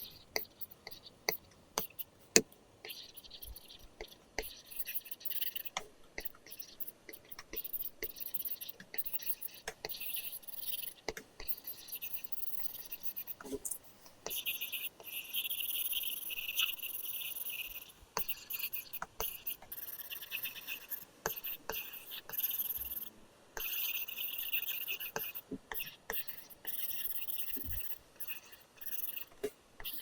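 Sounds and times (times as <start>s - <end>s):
stylus scratching on screen: 0.0s - 2.2s, 2.8s - 30.0s
stylus tip tapping: 0.4s - 4.6s.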